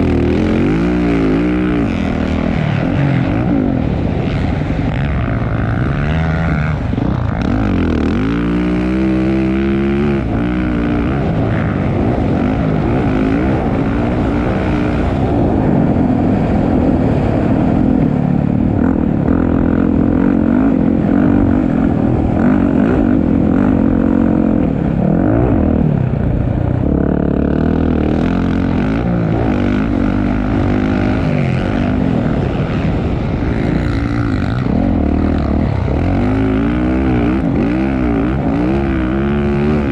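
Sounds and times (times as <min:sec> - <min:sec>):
motocross bike engines revving: 0:00.0 - 0:39.9.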